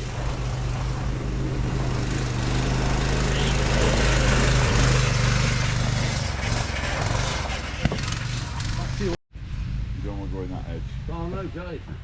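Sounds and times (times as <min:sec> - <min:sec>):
buggy engine running: 0:00.0 - 0:12.0.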